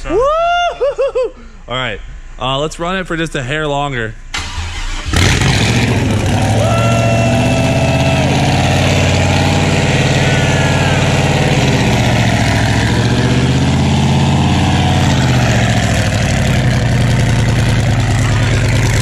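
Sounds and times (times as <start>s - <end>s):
truck engine fast idle: 4.4s - 19.0s.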